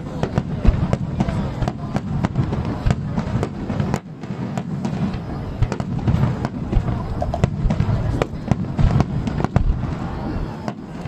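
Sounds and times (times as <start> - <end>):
firework shell bursts and cracks: 0.3 - 10.1
low rumble of booms: 4.7 - 10.5.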